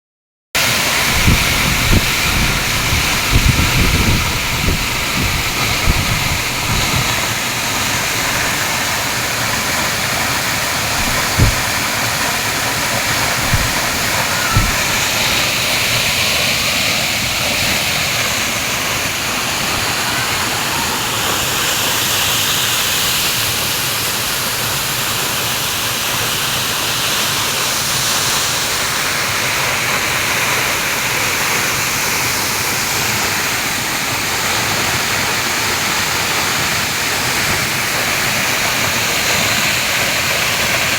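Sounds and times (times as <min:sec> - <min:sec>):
waterfall rushing: 0:00.6 - 0:40.9
low thumps: 0:10.9 - 0:11.8, 0:13.3 - 0:15.2.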